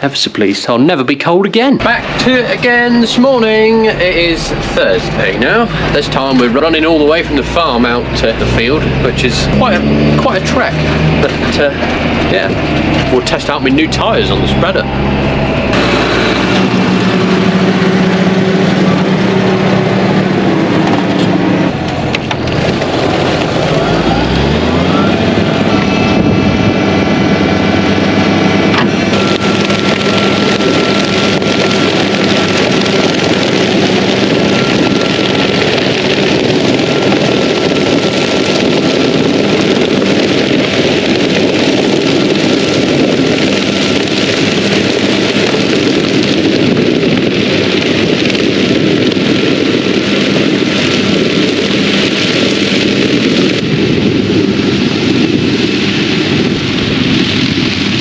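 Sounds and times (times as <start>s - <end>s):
tractor engine: 0.0s - 0.5s, 1.2s - 58.0s
tyre and wind noise: 0.9s - 58.0s.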